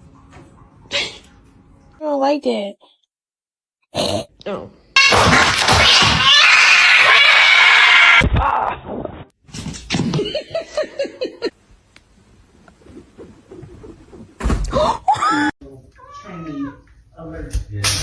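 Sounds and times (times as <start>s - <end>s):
cat yowling: 5.7s - 8.3s, 16.0s - 16.8s.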